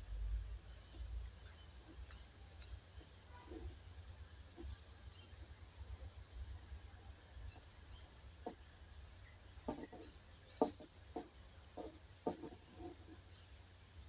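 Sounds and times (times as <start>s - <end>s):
small birds chirping: 0.6s - 14.0s
short knocks or crackles: 9.6s - 12.9s.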